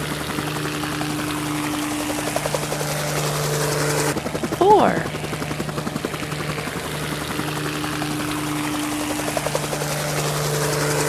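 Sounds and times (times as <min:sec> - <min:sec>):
helicopter rotor blades chopping: 0:00.0 - 0:11.0.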